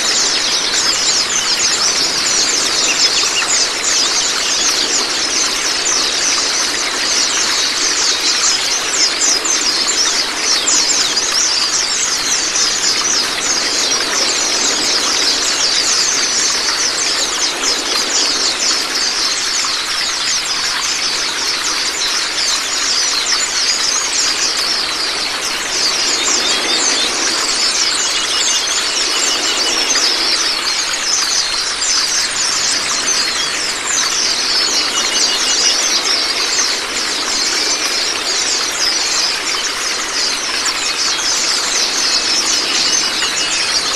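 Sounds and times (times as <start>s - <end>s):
running water: 0.0s - 43.9s
high-pitched bird twittering: 0.1s - 6.5s.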